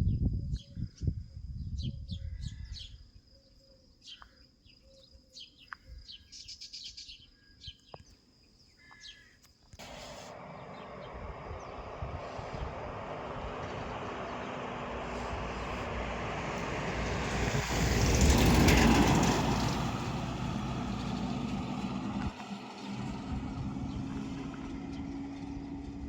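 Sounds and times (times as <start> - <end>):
songbirds chirping: 0.0 - 25.9
low rumble: 9.8 - 22.3
rushing noise with low hum: 9.8 - 26.0.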